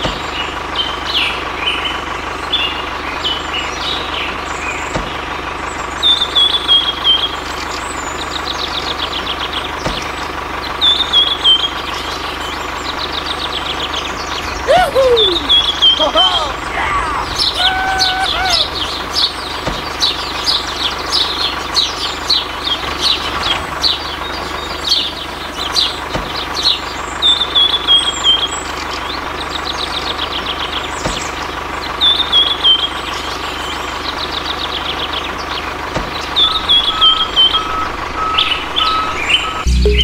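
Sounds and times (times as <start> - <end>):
birds chirping and trilling: 0.3 - 40.0.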